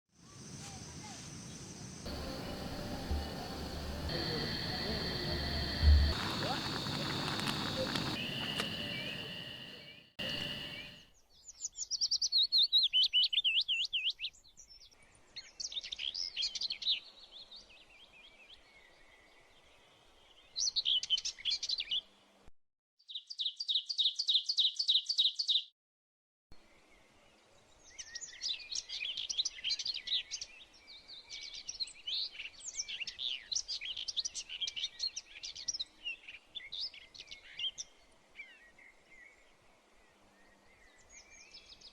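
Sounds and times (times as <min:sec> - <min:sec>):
steady hiss: 0:00.7 - 0:11.0
songbirds singing: 0:00.8 - 0:14.3
high steady tone: 0:02.1 - 0:11.0.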